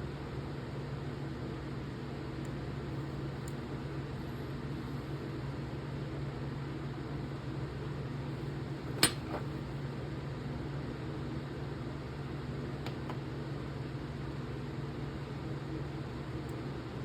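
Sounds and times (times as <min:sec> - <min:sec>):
metal knife parts clinking: 0:09.0 - 0:09.5.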